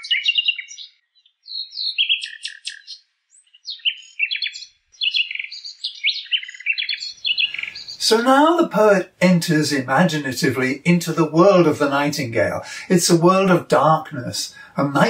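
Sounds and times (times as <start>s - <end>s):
nightingale singing: 0.0s - 11.8s.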